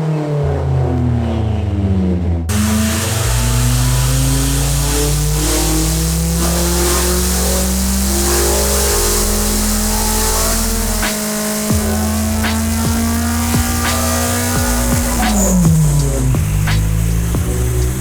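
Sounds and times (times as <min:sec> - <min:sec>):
car engine revving under load: 0:00.0 - 0:18.0.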